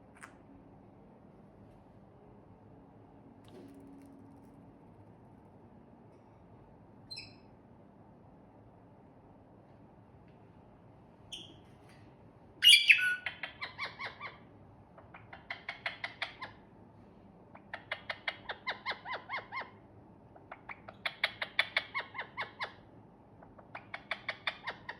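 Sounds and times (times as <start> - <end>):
parakeet chattering: 12.6 - 14.4, 15.0 - 16.6, 17.5 - 19.8, 23.4 - 24.9
parakeet squawk: 12.6 - 14.4, 15.0 - 16.6, 17.5 - 19.8, 20.4 - 22.8.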